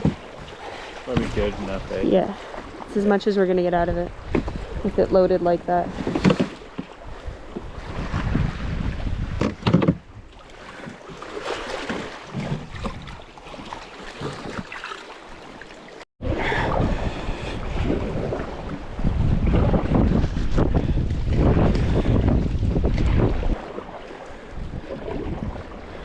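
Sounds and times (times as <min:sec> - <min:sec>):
water splashing around canoe: 0:00.0 - 0:26.0
wind on microphone: 0:01.2 - 0:10.3, 0:16.2 - 0:26.0.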